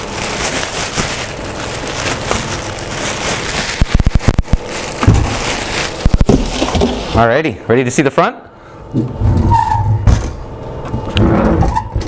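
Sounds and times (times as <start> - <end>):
wrapping rustling: 0.0 - 7.2.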